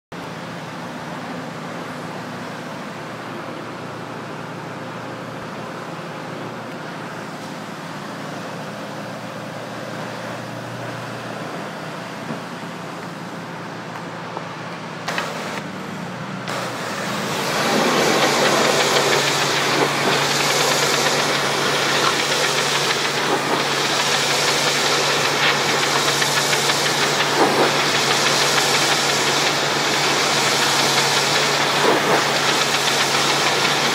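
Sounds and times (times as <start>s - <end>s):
pressure washer engine running: 14.9s - 33.9s
hissing water jet spray: 16.5s - 33.9s.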